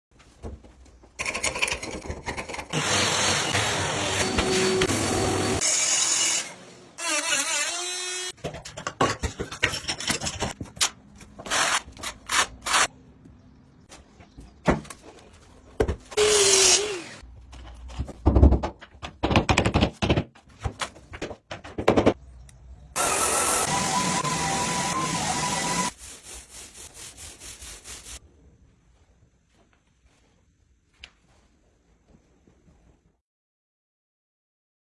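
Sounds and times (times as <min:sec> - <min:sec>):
power tool running: 0:02.8 - 0:08.3, 0:23.0 - 0:25.9
knocks and thuds on wooden floor: 0:18.0 - 0:22.2.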